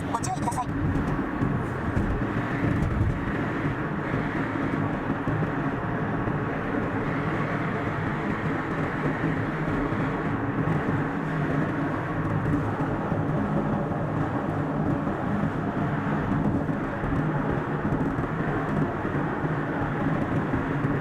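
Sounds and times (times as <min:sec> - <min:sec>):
car driving on highway: 0:00.0 - 0:21.0.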